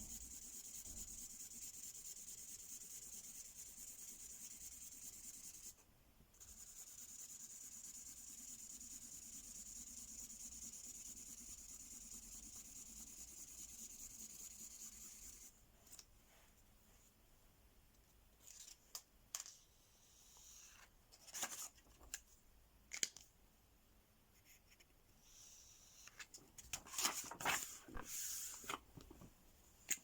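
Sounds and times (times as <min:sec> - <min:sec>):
marker scratching on paper: 0:06.4 - 0:15.5.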